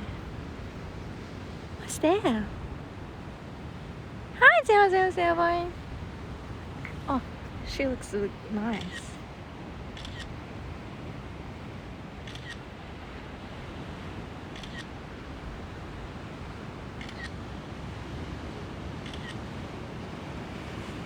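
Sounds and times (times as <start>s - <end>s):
sea waves: 0.0s - 21.0s
camera shutter clicking: 10.0s - 10.3s, 12.3s - 12.6s, 14.6s - 14.9s, 19.0s - 19.4s.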